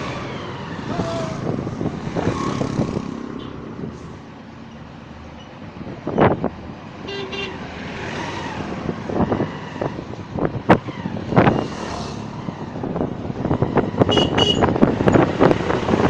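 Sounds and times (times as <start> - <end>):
vehicle driving on road: 0.0 - 16.0.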